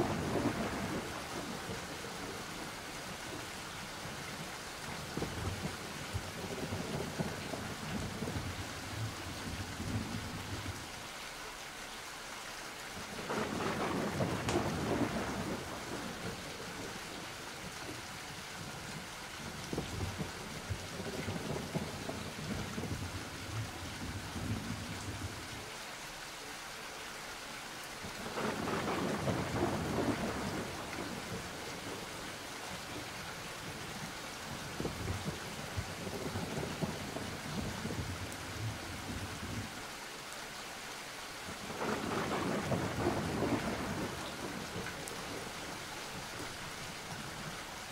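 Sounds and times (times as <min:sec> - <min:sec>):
rolling thunder: 0:00.0 - 0:02.6, 0:05.0 - 0:10.8, 0:13.2 - 0:17.0, 0:19.4 - 0:25.4, 0:28.2 - 0:39.8, 0:41.6 - 0:47.5
steady rain: 0:00.0 - 0:47.9.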